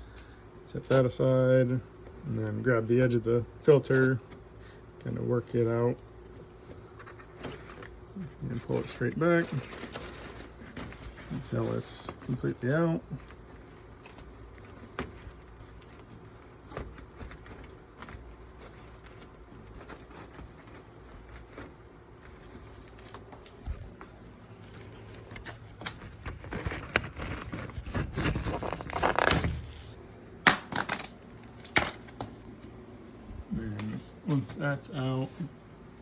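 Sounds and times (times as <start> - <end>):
cardboard filter frame rustling: 5.4 - 30.1.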